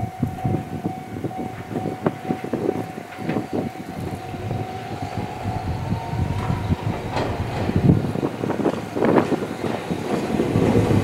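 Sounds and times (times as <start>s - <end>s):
steady tone: 0.0s - 9.0s
train wheels clattering over joints: 0.4s - 11.0s.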